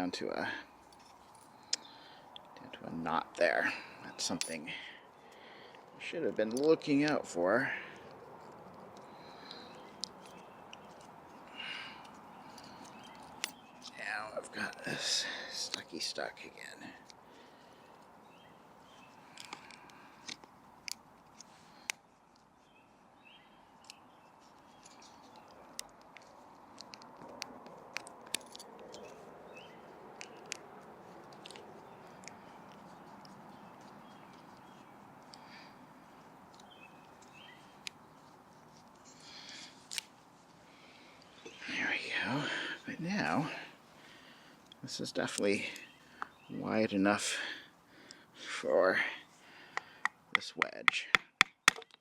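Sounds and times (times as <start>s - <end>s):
low steady hiss: 0.0s - 25.9s.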